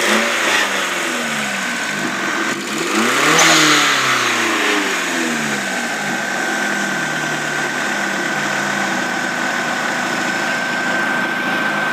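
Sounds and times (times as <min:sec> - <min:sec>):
high whine: 0:03.3 - 0:06.7.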